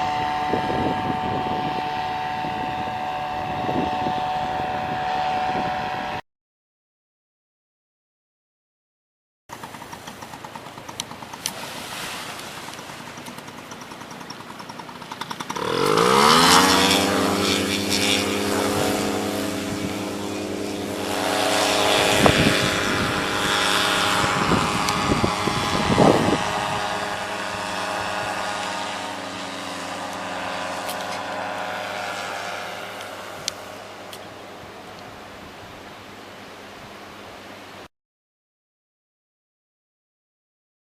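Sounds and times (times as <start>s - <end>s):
paramotor engine revving: 0.0s - 6.2s, 9.6s - 34.3s.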